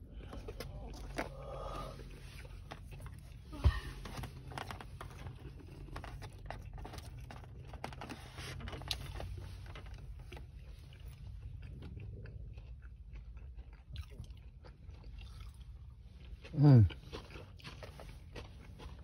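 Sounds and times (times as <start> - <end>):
chewing with wet clicks: 9.9 - 19.0.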